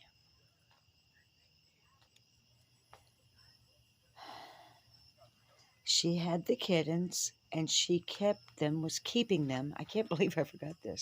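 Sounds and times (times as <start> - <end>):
faint insect chorus: 0.0 - 11.0
soft breathy rush: 3.4 - 5.8.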